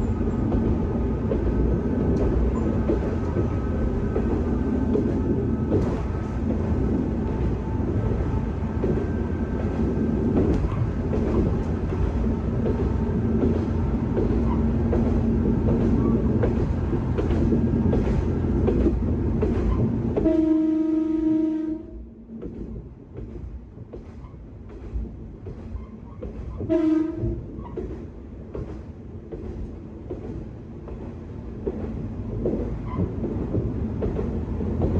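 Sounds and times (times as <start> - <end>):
diesel railcar engine: 0.0 - 34.9
rail noise: 0.0 - 34.9
train horn: 20.2 - 22.1, 26.7 - 27.4.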